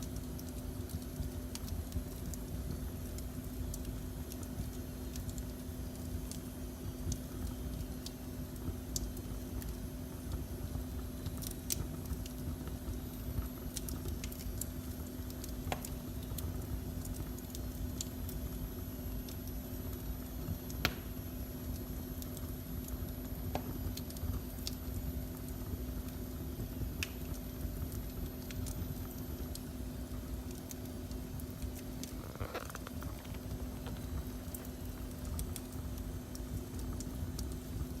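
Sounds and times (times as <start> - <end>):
low rumble and hum: 0.0 - 38.0
wood fire crackling and popping: 0.0 - 38.0.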